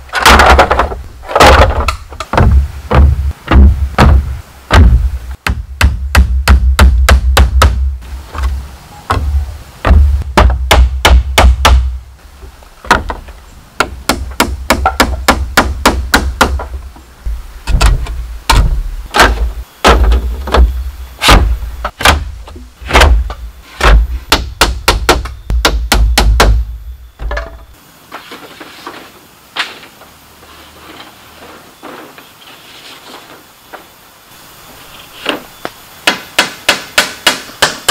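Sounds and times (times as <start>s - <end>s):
hammer striking bamboo: 0.2s - 8.5s, 9.1s - 12.0s, 13.8s - 16.8s, 17.7s - 27.6s, 36.0s - 37.9s
faint hiss: 0.9s - 37.9s.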